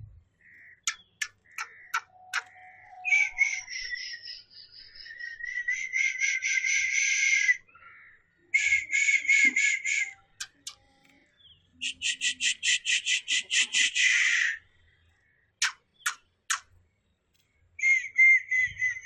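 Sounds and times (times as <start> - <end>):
sharp clicks: 10.4 - 10.8, 15.6 - 16.7.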